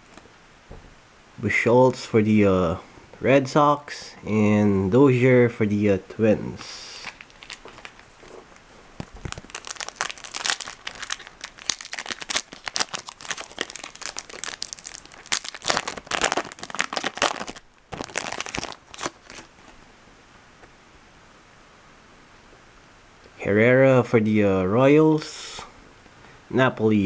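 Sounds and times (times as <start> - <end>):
foil wrapper tearing and crinkling: 7.0 - 19.8.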